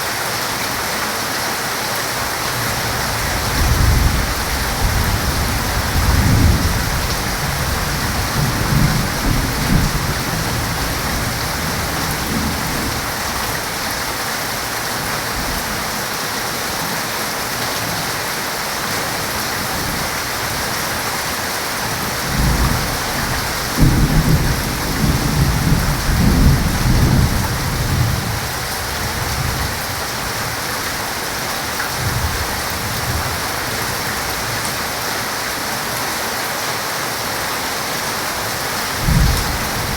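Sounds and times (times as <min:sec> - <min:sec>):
heavy rain falling: 0:00.0 - 0:39.9
thunder rolling: 0:03.1 - 0:13.1, 0:22.2 - 0:28.4.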